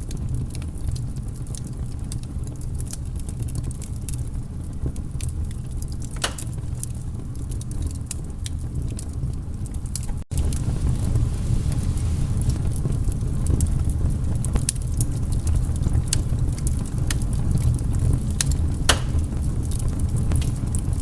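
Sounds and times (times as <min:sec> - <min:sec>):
fire pop: 0:00.0 - 0:09.2, 0:10.0 - 0:21.0
wood fire crackling: 0:00.0 - 0:21.0.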